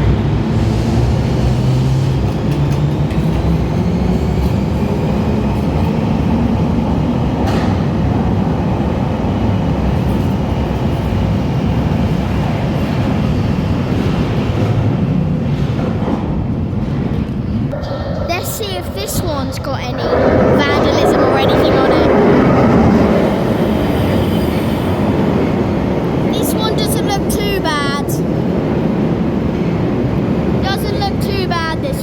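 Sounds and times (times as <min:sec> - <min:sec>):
underground train rumbling: 0:00.0 - 0:32.0.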